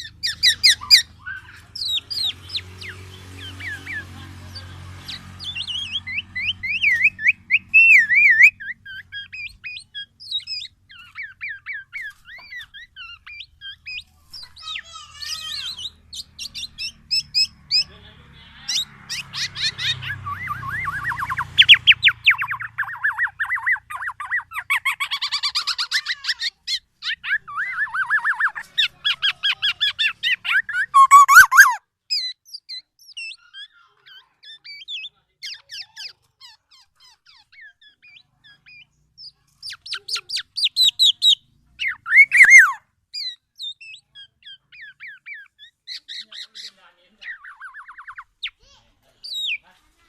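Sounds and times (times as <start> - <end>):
oriole chattering calls: 0.0 - 31.8, 39.8 - 43.3.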